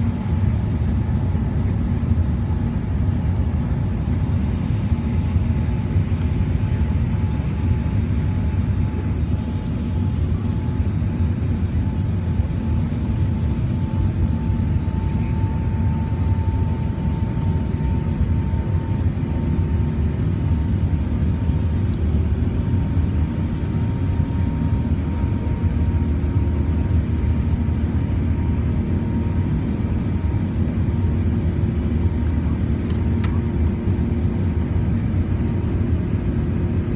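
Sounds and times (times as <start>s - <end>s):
faint jet engine whine: 0.0s - 36.9s
jet engines rumbling: 0.0s - 36.9s.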